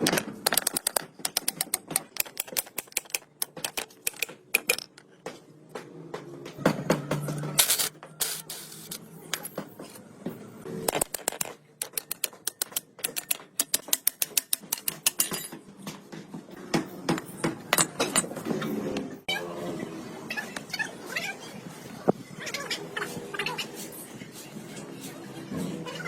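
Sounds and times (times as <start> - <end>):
hand tool clicks and taps: 0.1 - 5.0, 10.9 - 15.4.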